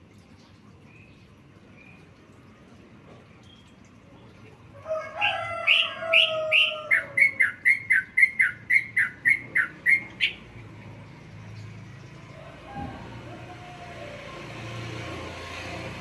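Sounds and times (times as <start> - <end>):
bird singing whistled notes: 7.2 - 10.4.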